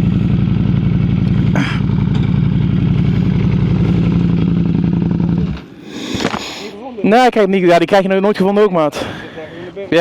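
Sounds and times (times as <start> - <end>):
motorcycle engine idling: 0.0 - 6.8
brief rustle: 6.1 - 6.6.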